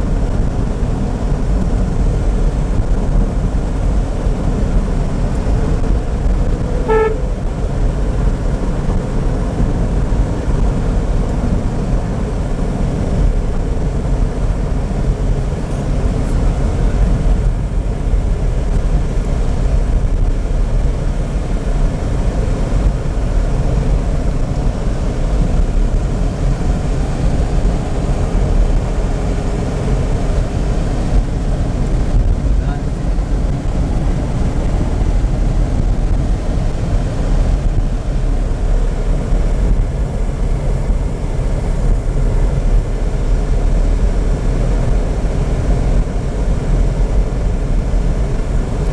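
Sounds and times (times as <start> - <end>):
car road and engine rumble: 0.0 - 48.9
car horn toot: 6.5 - 7.6.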